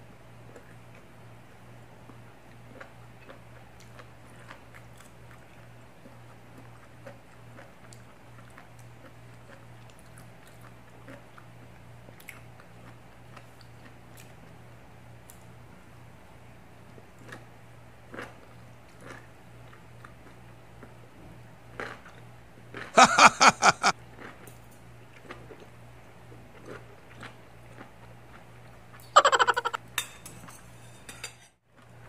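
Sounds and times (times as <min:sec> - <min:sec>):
biting and chewing: 0:02.0 - 0:14.5.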